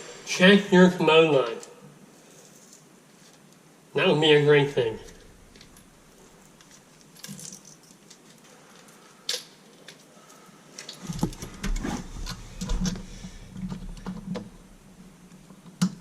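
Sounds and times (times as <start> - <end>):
clicks and rattles of handled objects: 1.4 - 3.6, 5.1 - 14.5.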